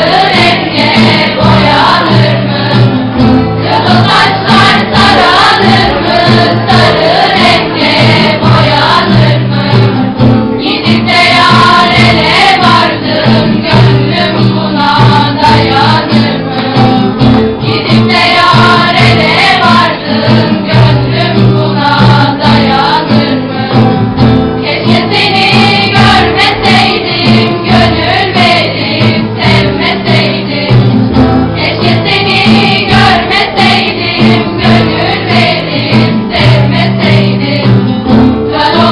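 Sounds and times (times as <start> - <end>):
instrumental accompaniment: 0.0 - 38.9.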